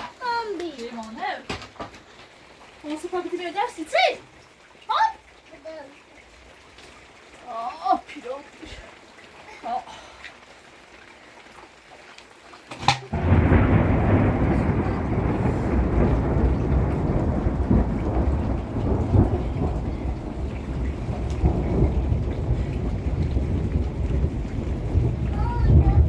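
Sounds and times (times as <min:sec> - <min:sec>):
heavy rain: 0:00.0 - 0:26.0
thunder rumble: 0:13.1 - 0:26.0.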